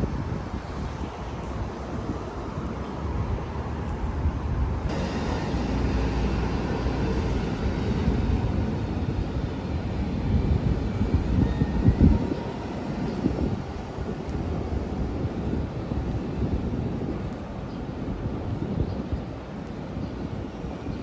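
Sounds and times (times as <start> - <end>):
wind on microphone: 0.0 - 21.0
passing vehicle traffic rumble: 1.2 - 15.4.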